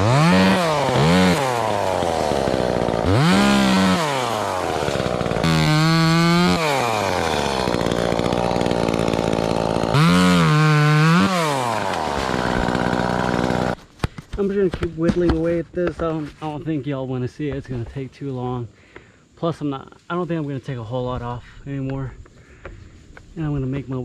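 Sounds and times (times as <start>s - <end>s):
chainsaw cutting wood: 0.0s - 14.4s.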